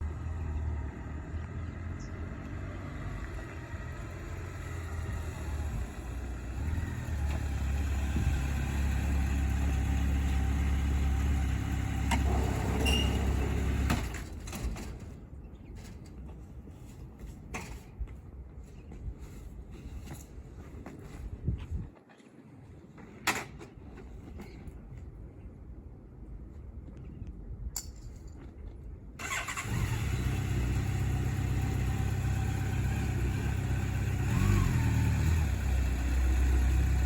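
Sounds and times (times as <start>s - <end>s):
vehicle engine deep rumble: 0.0s - 14.5s, 29.2s - 37.0s.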